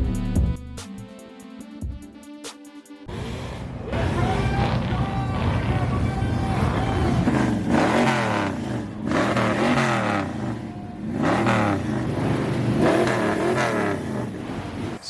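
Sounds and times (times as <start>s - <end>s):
car engine revving: 3.1s - 15.0s.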